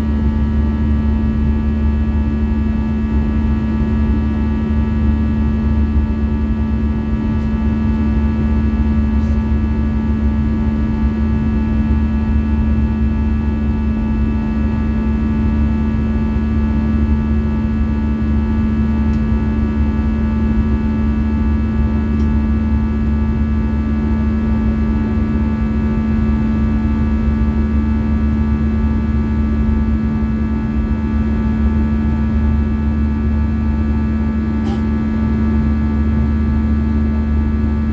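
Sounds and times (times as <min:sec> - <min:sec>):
aircraft cabin rumble and hum: 0:00.0 - 0:37.9.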